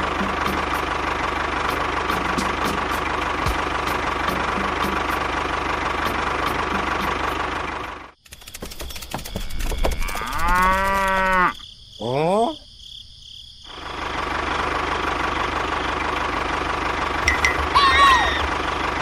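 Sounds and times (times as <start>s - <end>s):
steady engine running: 0.0s - 9.2s, 13.7s - 19.0s
cow mooing: 10.1s - 11.6s.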